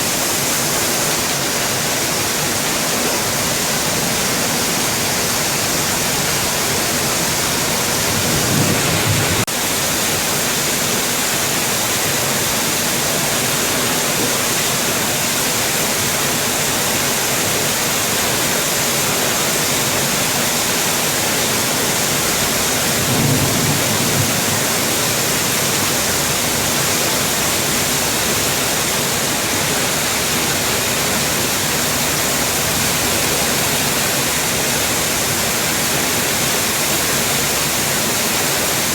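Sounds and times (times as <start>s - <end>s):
heavy rain hissing: 0.0s - 38.9s
low rumble: 6.3s - 9.5s.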